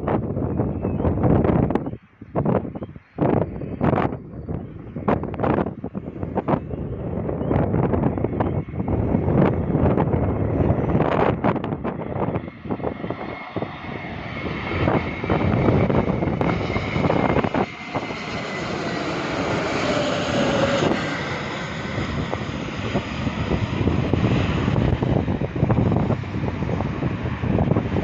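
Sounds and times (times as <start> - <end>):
wind buffeting microphone: 0.0 - 28.0
jet engines roaring: 2.4 - 28.0.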